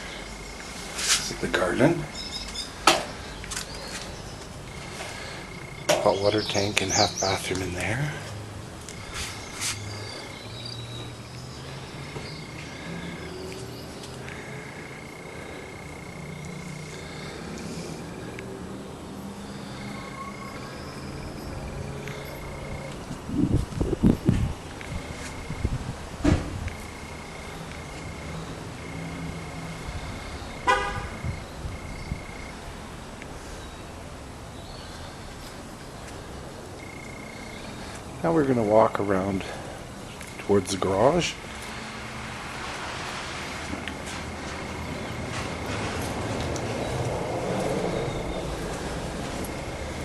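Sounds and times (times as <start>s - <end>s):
car horn toot: 30.6s - 31.3s.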